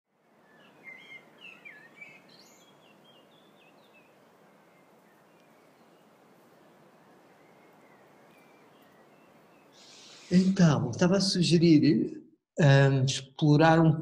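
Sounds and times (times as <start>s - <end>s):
outdoor background hiss: 0.1s - 13.8s
small birds chirping: 0.3s - 10.4s.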